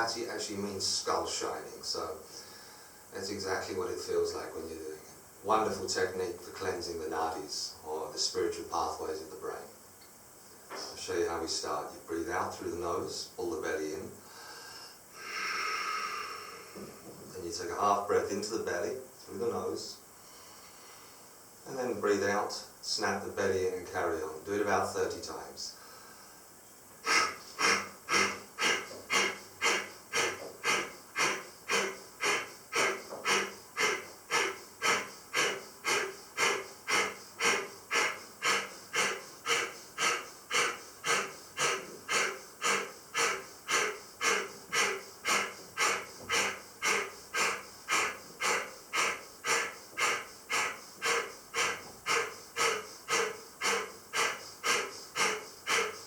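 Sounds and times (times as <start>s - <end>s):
sharp nasal exhalations: 2.2s - 3.1s, 14.2s - 17.1s, 20.2s - 21.4s, 25.8s - 56.0s.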